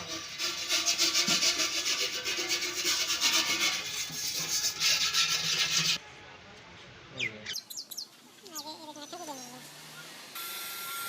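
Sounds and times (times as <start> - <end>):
rhythmic rasping scrape: 0.0 - 6.0.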